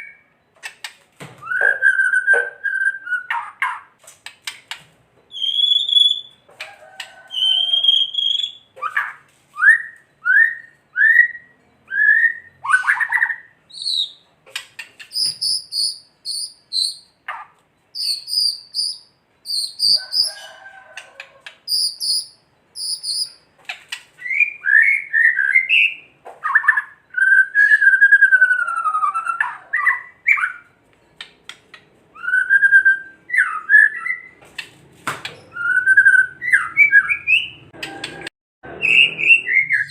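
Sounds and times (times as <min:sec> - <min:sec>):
bird singing varied song: 0:05.2 - 0:06.5, 0:07.4 - 0:20.3, 0:21.5 - 0:23.5.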